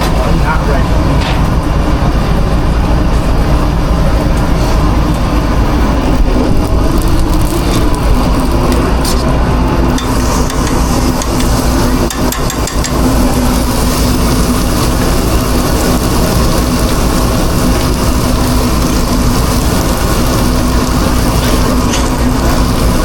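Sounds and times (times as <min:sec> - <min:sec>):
loud machine drone: 0:00.0 - 0:23.0.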